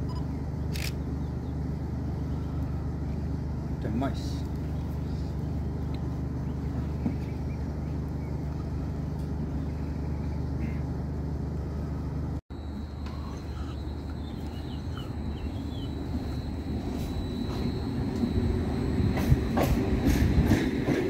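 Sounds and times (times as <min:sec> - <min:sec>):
steady low hum: 0:00.0 - 0:21.0
train high whine: 0:00.0 - 0:21.0
train rolling in: 0:11.0 - 0:21.0.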